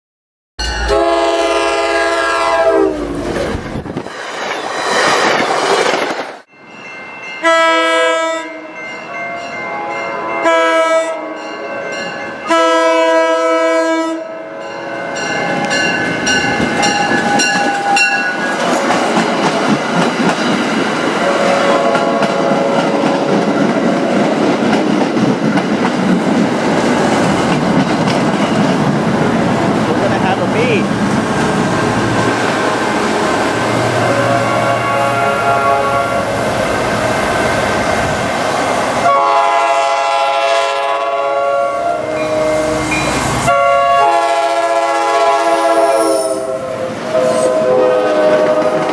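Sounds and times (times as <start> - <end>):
locomotive air horn: 0.6 - 3.2, 7.4 - 8.7, 9.7 - 11.4, 12.4 - 14.6, 21.2 - 23.1, 33.8 - 36.5, 39.0 - 48.9
train wheels clickety-clack: 16.1 - 29.0, 48.3 - 48.9.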